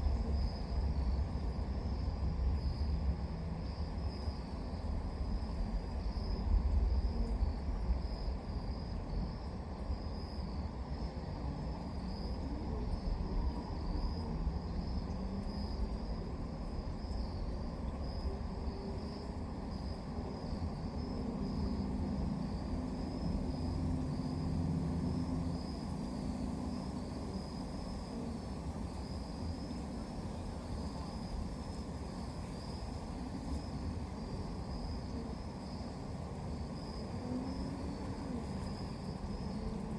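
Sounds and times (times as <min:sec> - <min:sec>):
constant low rumble: 0:00.0 - 0:39.9
crickets chirping: 0:00.0 - 0:39.9.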